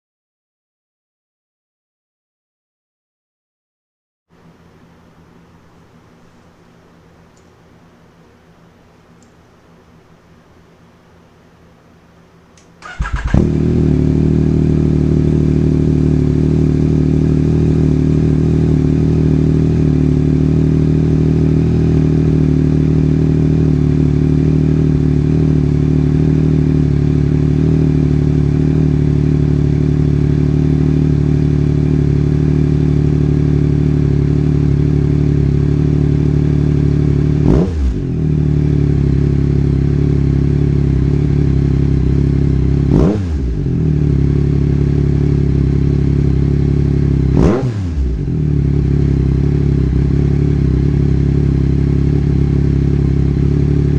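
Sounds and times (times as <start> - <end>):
engine throttle blip: 12.8 - 13.8
motorcycle engine idling: 12.8 - 37.4, 38.0 - 47.4, 48.1 - 53.9.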